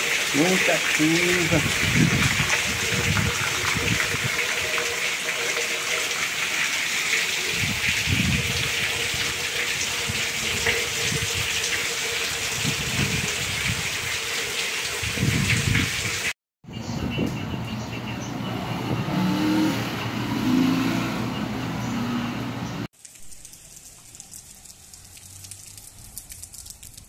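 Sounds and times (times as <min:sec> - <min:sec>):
heavy rain pouring: 0:00.0 - 0:16.4, 0:23.0 - 0:27.0
street ambience: 0:16.6 - 0:27.0.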